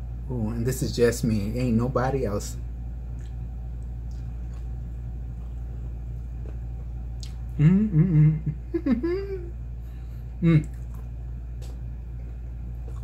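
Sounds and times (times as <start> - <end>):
low hum: 0.0 - 13.0
man chewing: 3.0 - 8.3, 10.1 - 13.0
man humming mmm: 7.2 - 9.7, 10.4 - 11.0.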